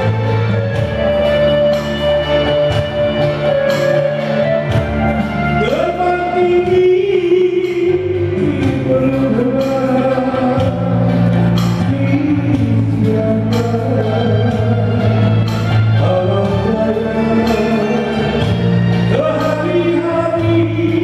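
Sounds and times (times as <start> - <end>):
percussion hits: 0.0 - 7.0
bass: 0.0 - 21.0
person singing long sliding notes: 0.0 - 21.0.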